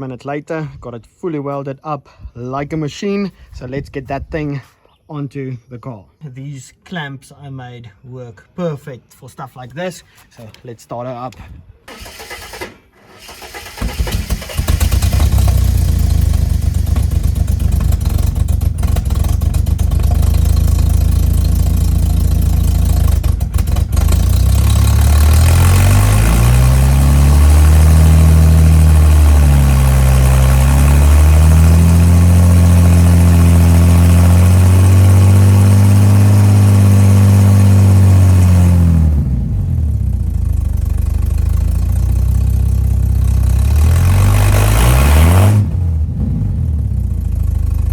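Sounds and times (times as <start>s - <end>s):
car engine idling and revving: 12.1s - 47.9s.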